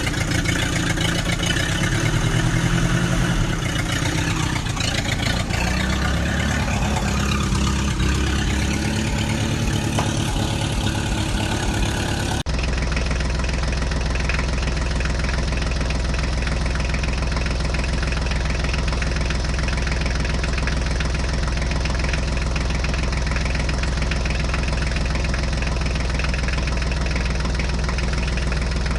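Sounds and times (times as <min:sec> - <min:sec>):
tractor diesel engine: 0:00.0 - 0:28.9.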